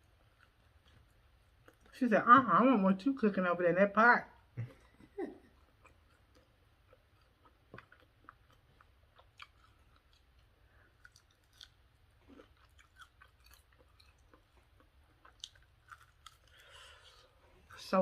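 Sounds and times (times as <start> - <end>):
chewing crispy food: 0.0 - 2.0, 5.4 - 18.0.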